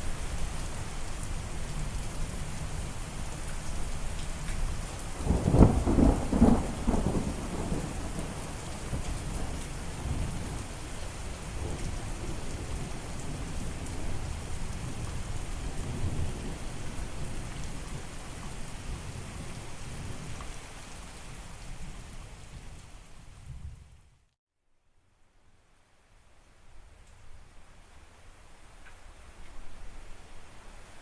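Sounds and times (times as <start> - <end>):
steady rain: 0.0 - 24.3, 25.2 - 31.0
rolling thunder: 5.3 - 10.7.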